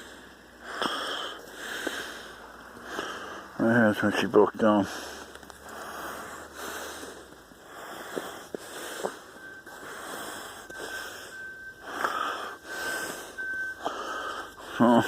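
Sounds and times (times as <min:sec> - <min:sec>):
person breathing heavily: 0:00.0 - 0:03.6, 0:04.7 - 0:15.0.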